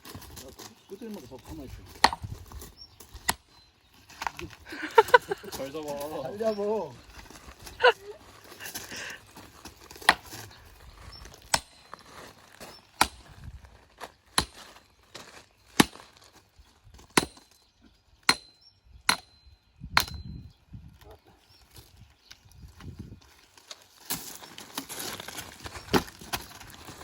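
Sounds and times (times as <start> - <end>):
sledgehammer striking axe: 2.0 - 2.3, 10.0 - 10.3, 13.0 - 13.3, 17.2 - 17.6, 18.3 - 19.4, 20.0 - 20.3.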